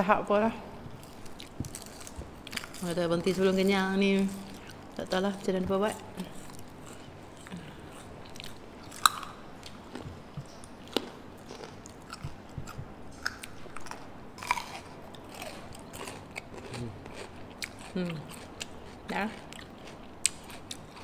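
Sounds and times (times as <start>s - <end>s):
chewing crisp cucumber: 6.1s - 21.0s.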